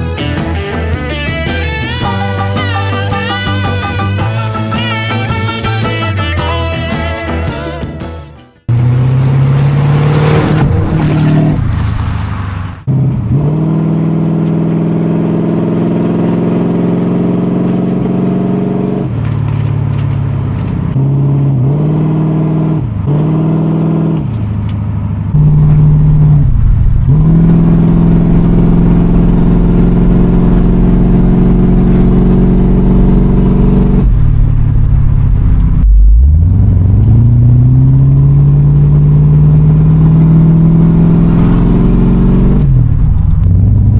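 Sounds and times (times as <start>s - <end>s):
car engine revving: 8.6s - 43.9s.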